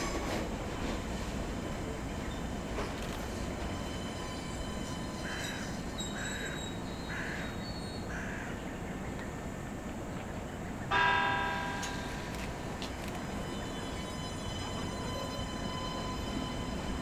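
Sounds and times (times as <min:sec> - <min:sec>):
low rumble of railway depot: 0:00.0 - 0:17.0
crow cawing: 0:05.2 - 0:07.5, 0:08.1 - 0:08.6
loud bell-like ring: 0:10.9 - 0:12.4, 0:13.3 - 0:17.0.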